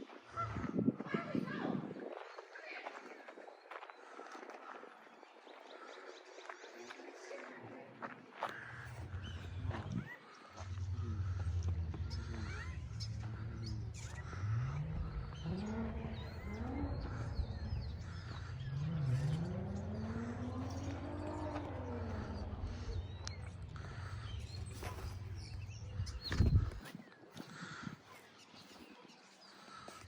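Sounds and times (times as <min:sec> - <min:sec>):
small birds chirping: 0:00.0 - 0:30.0
steady low rumble: 0:08.6 - 0:26.9
slow low rising and falling tones: 0:09.0 - 0:26.8.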